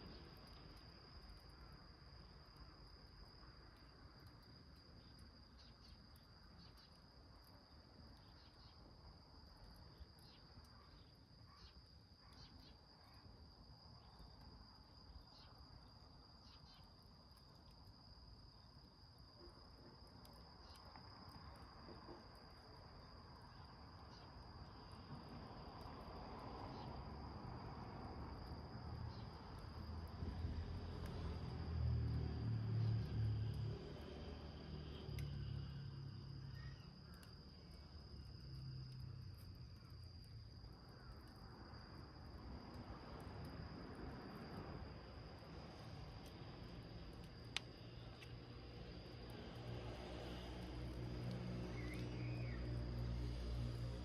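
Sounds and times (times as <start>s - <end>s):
cricket trilling: 0.0s - 54.0s
fire crackling and popping: 45.8s - 54.0s.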